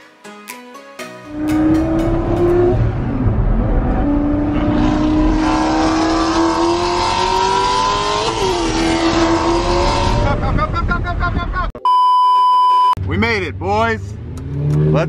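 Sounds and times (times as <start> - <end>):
sports car engine accelerating: 1.3 - 10.5, 13.1 - 15.0.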